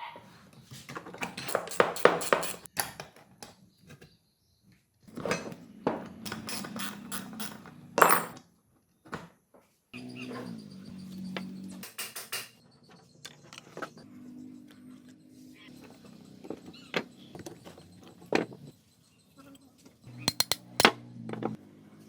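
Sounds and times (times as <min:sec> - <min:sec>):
metal tools clinking and knocking: 0:01.2 - 0:02.7, 0:06.3 - 0:08.4, 0:20.3 - 0:20.9.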